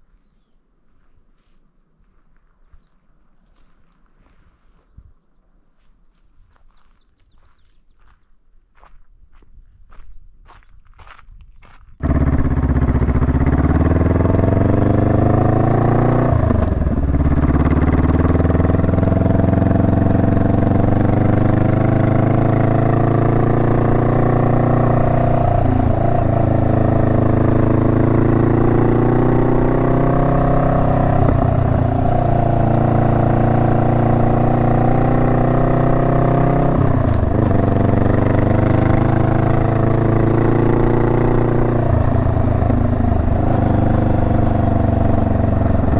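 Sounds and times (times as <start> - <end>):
motorcycle engine accelerating: 12.0 - 45.9.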